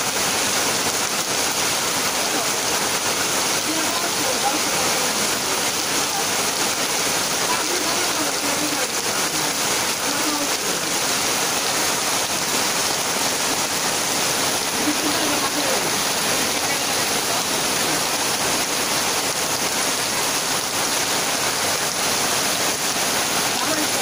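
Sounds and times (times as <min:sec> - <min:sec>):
heavy rain on a tin roof: 0:00.0 - 0:24.0.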